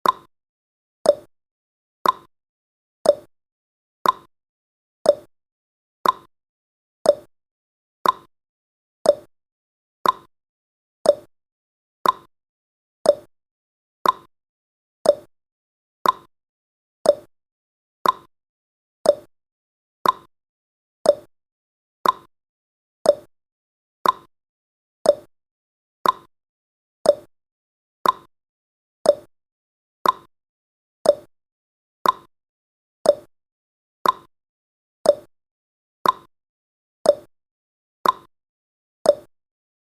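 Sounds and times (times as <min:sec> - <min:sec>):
clock ticking: 0:02.0 - 0:02.3, 0:04.0 - 0:04.3, 0:06.0 - 0:06.3, 0:08.0 - 0:08.3, 0:10.0 - 0:10.3, 0:12.0 - 0:12.3, 0:14.0 - 0:14.3, 0:15.1 - 0:15.3, 0:16.0 - 0:16.3, 0:17.1 - 0:17.3, 0:18.0 - 0:18.3, 0:19.1 - 0:19.3, 0:20.0 - 0:20.3, 0:21.1 - 0:21.3, 0:22.0 - 0:22.3, 0:24.0 - 0:24.3, 0:26.0 - 0:26.3, 0:28.0 - 0:28.3, 0:29.1 - 0:29.3, 0:30.0 - 0:30.3, 0:31.1 - 0:31.3, 0:32.0 - 0:32.3, 0:33.1 - 0:33.3, 0:34.0 - 0:34.3, 0:35.1 - 0:35.3, 0:36.0 - 0:36.3, 0:38.0 - 0:38.3, 0:39.1 - 0:39.3.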